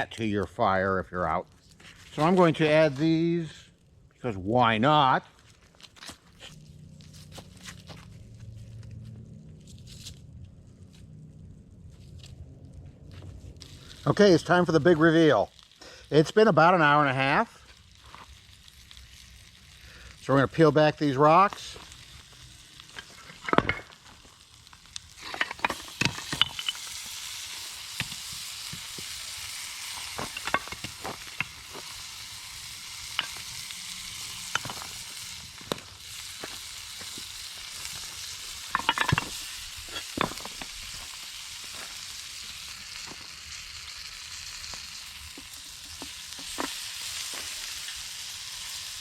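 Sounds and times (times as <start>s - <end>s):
steady high hiss: 13.5s - 49.0s
rocks knocking together: 34.5s - 34.9s, 38.7s - 40.7s.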